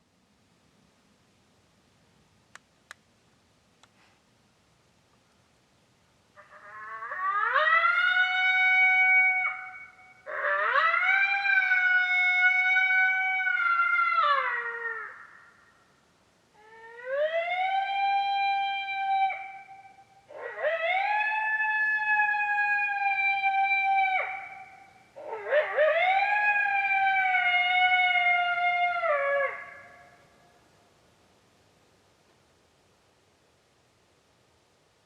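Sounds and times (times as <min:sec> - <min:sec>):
electronic coyote howls: 0:06.4 - 0:15.6, 0:16.6 - 0:30.2.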